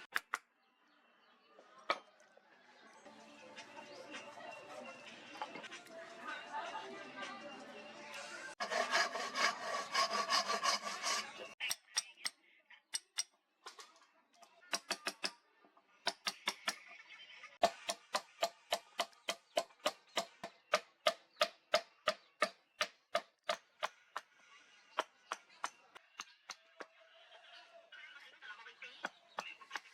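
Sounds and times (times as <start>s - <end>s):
hand tool scraping strokes: 8.6s - 11.6s.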